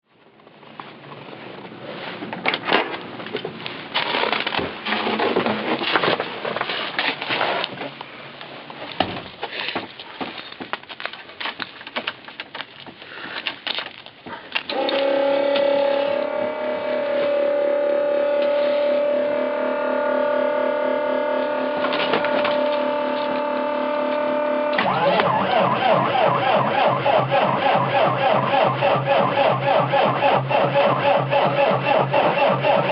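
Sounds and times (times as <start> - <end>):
steady high whine: 14.7 - 32.9.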